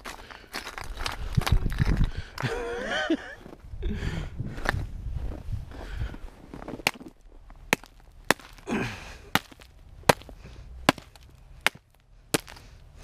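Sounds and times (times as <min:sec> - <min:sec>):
hammer striking ice: 0:07.7 - 0:08.6, 0:09.3 - 0:10.3, 0:10.9 - 0:12.6.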